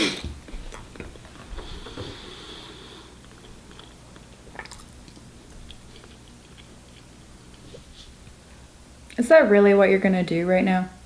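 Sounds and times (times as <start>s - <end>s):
faint chewing: 0.2s - 2.4s, 3.0s - 8.4s.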